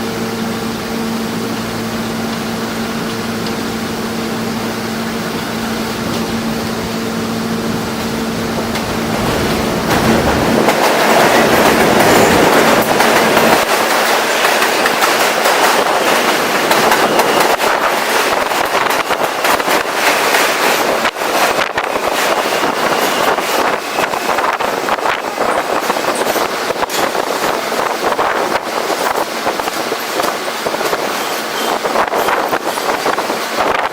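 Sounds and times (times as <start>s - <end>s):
subway train rushing on tracks: 0.0s - 33.9s
wheels clicking over rail joints: 7.8s - 33.9s.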